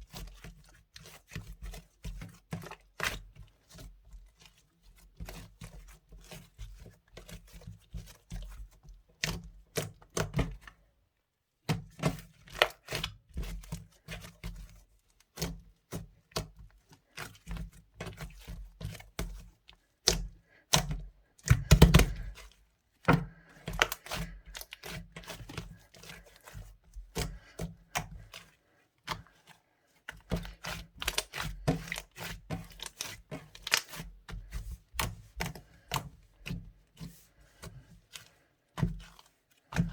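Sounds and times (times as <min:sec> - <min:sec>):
hands squishing sticky slime: 0:11.6 - 0:39.9.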